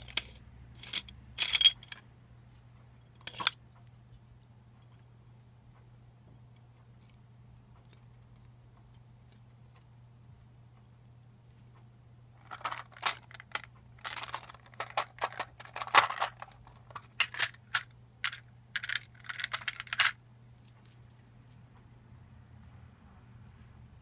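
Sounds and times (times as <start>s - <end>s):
lightsaber hilt parts clicking and rattling: 0.0s - 2.0s, 12.4s - 21.5s
faint low hum: 0.0s - 24.0s.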